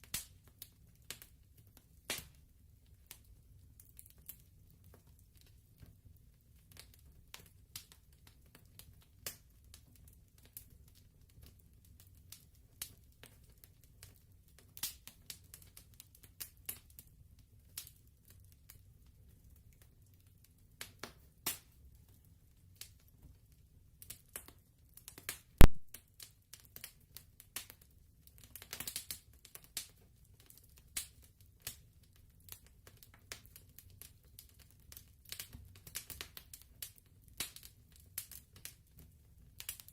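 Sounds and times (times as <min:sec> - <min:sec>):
low steady fire rumble: 0:00.0 - 0:39.9
wood fire crackling: 0:00.0 - 0:39.9
loud pop of fire: 0:25.6 - 0:26.0.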